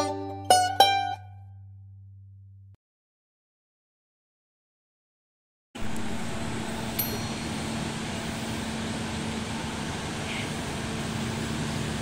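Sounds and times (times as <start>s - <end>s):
passenger train rumble and hum: 5.8s - 12.0s.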